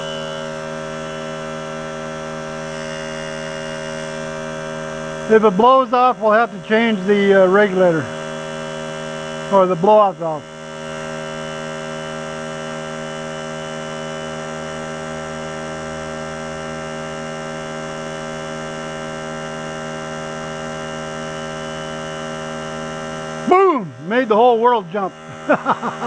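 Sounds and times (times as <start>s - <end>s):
air compressor humming: 0.0s - 26.0s.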